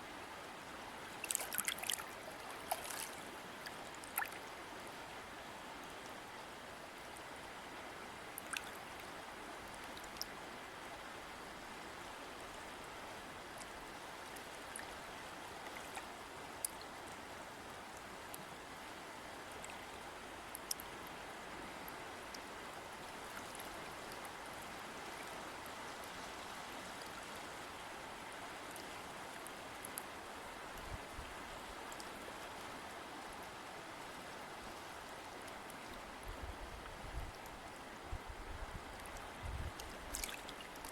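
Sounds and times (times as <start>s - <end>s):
stream water rushing: 0.0s - 40.9s
small sharp splashes: 1.2s - 2.0s, 2.6s - 3.2s, 40.1s - 40.9s.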